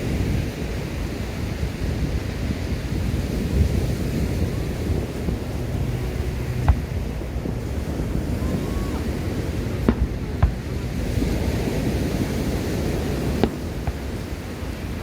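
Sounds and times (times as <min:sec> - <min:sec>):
surf roaring: 0:00.0 - 0:15.0
wind on microphone: 0:00.0 - 0:15.0
fireworks bangs: 0:04.6 - 0:07.6, 0:08.4 - 0:11.3, 0:12.8 - 0:14.6.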